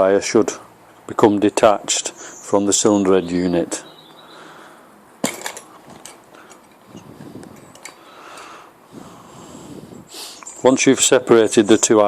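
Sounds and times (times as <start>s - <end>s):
parts clicking and rustling: 5.2s - 8.5s.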